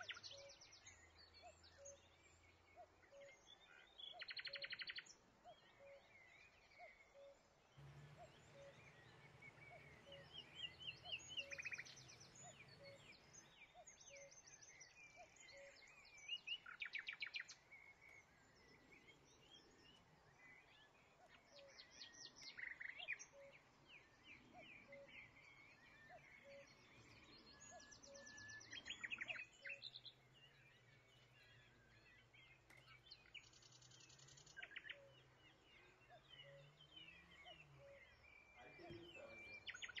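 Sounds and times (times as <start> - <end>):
birds chirping: 0.0 - 40.0.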